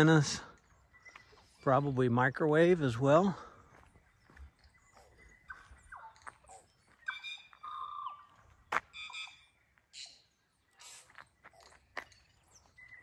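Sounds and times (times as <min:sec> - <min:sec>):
birds whistling short notes: 0:05.1 - 0:13.0.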